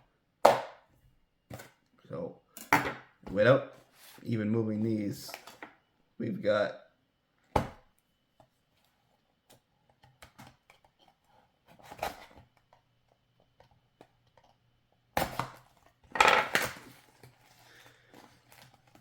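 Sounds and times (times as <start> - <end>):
packaging clicks and rustles: 15.6 - 19.0.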